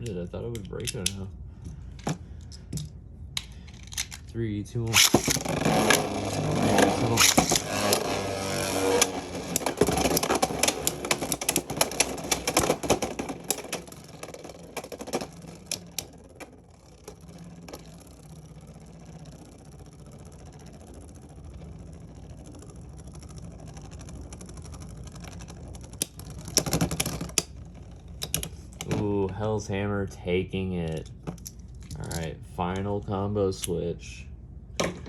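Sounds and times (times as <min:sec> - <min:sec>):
spinning top whirring: 0:02.0 - 0:29.2
spinning tops clattering: 0:04.9 - 0:28.8.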